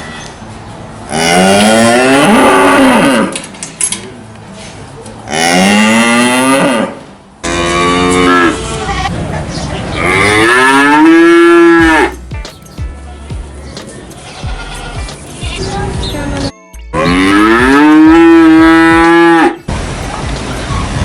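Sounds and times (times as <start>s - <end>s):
cattle mooing: 1.1s - 3.4s, 5.3s - 9.1s, 10.0s - 12.2s, 17.0s - 19.6s.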